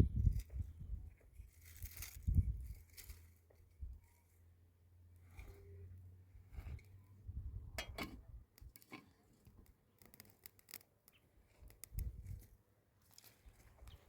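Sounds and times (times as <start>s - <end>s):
scratches and clicks: 8.0s - 12.5s.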